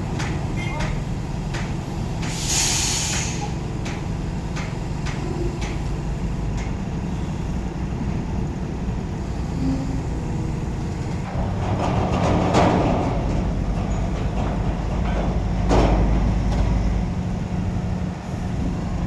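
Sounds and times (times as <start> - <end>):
diesel truck engine running: 0.0 - 19.0
air hissing: 2.2 - 3.6.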